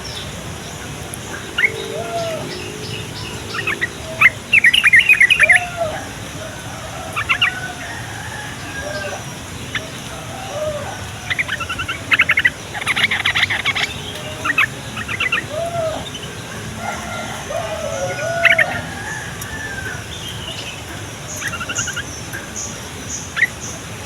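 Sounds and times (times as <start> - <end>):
bird chattering calls: 0.0 - 23.8
lower arching bird calls: 0.0 - 24.0.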